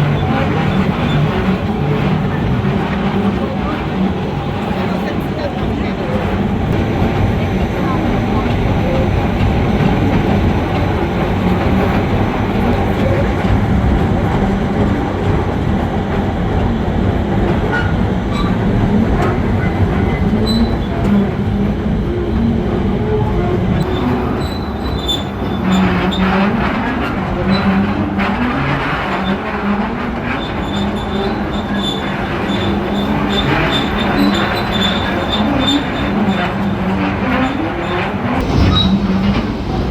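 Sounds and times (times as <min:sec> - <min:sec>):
train rumbling on track: 0:00.0 - 0:39.9
wheel clicks and squeals: 0:23.8 - 0:26.4, 0:30.4 - 0:38.0.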